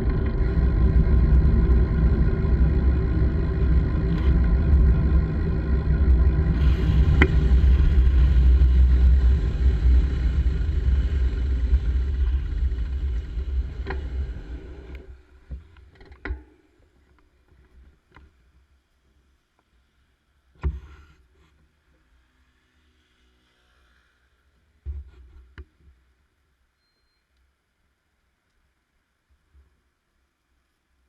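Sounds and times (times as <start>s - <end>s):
wind and riding noise rumbling: 0.0s - 16.4s.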